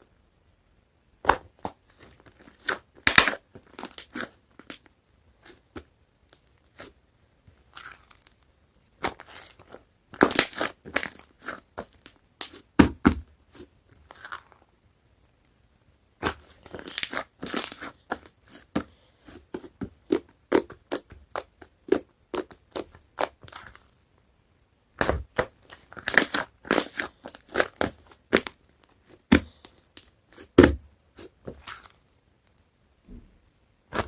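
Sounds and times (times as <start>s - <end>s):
slime squishing with wet pops: 9.0s - 14.5s, 16.2s - 23.9s, 25.0s - 32.0s.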